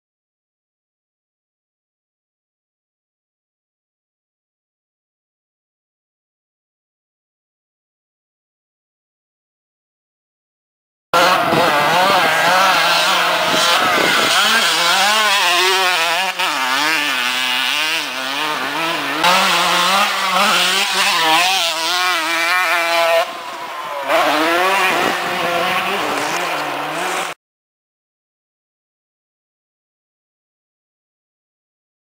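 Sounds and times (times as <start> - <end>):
dirt bike engine revving: 11.2 - 27.4.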